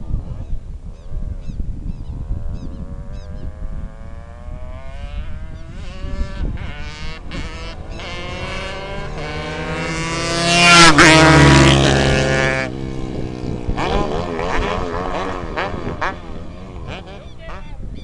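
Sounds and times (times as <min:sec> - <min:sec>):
motorcycles racing past: 0:00.0 - 0:18.0
wavering engine sound: 0:00.0 - 0:18.0.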